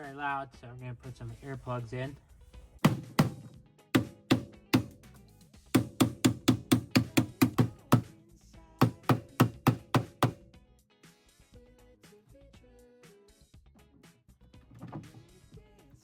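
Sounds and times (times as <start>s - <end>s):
background music: 0.0s - 11.2s
hammer blows on metal: 2.9s - 5.0s, 5.8s - 8.1s.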